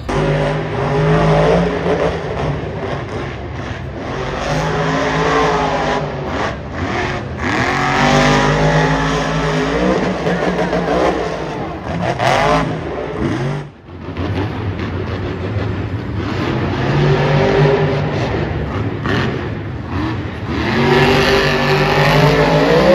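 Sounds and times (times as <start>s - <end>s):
truck engine revving hard: 0.0s - 22.9s.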